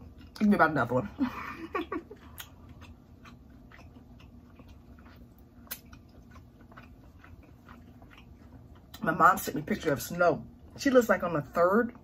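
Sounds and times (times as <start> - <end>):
closed-mouth chewing: 0.0 - 0.5, 1.9 - 10.8.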